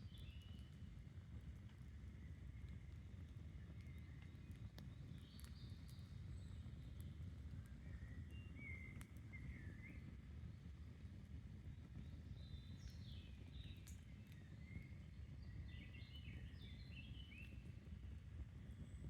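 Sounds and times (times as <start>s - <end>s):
campfire crackling: 0.1s - 9.3s.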